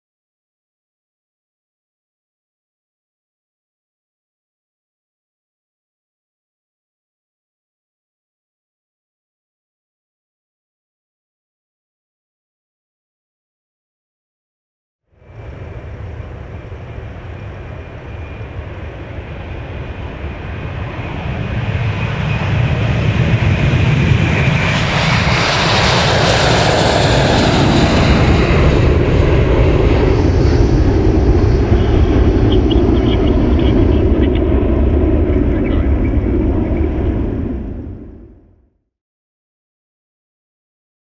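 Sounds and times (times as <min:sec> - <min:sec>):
jet airliner engines: 0:15.1 - 0:38.7.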